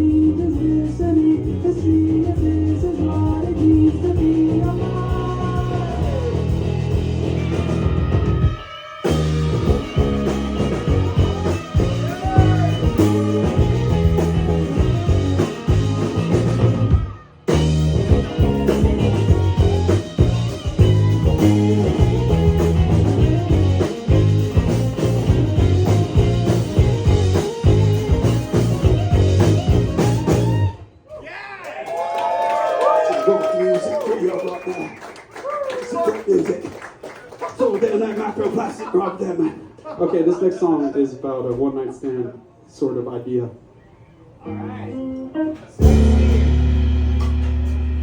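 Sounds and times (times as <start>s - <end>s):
rock band playing live: 0.0s - 30.9s, 44.5s - 48.0s
guitar: 0.0s - 31.2s, 44.3s - 48.0s.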